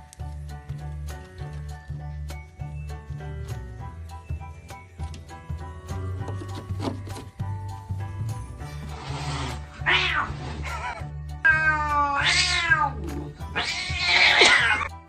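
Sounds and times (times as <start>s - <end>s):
cat meowing: 9.7s - 14.9s.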